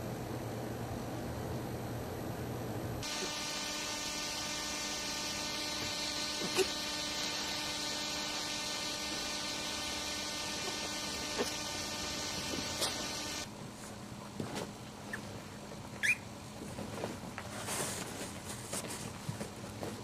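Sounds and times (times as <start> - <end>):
electrical hum: 0.0 - 20.0
brief squeak: 16.0 - 16.2.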